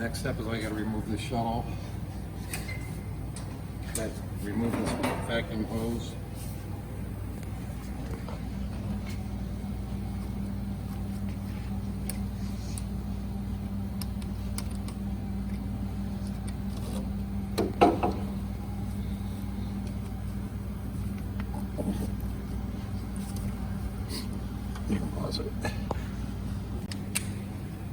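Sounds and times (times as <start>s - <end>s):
steady machine hum: 0.0s - 27.9s
small clicks of parts: 14.0s - 15.6s.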